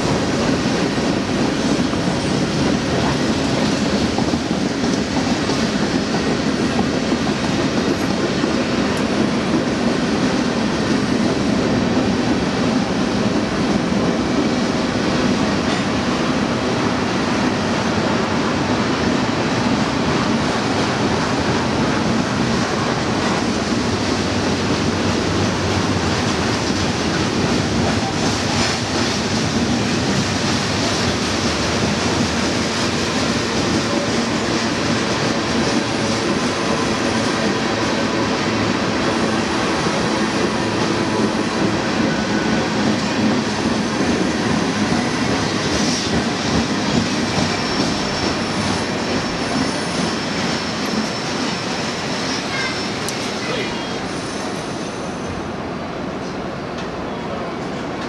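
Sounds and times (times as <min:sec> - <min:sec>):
freight train rolling past: 0:00.0 - 0:58.0
high wheel squeals: 0:46.9 - 0:55.5.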